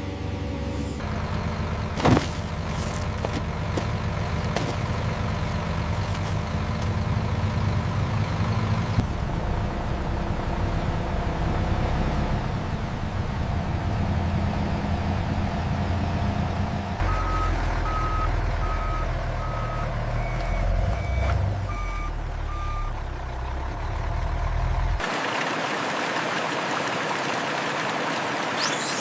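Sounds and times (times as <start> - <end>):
diesel engine running: 0.0 - 26.8
reversing alarm beeping: 17.0 - 22.9.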